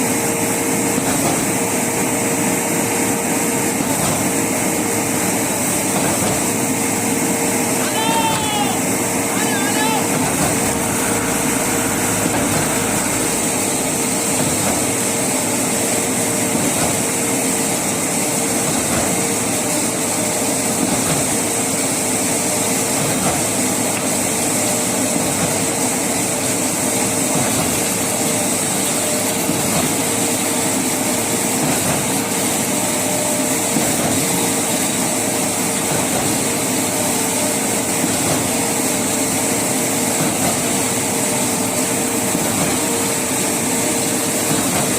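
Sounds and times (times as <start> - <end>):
engine running steadily: 0.0 - 44.9.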